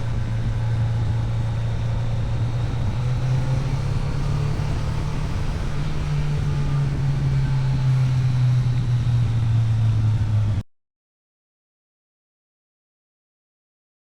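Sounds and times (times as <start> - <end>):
engine droning steadily: 0.0 - 10.6.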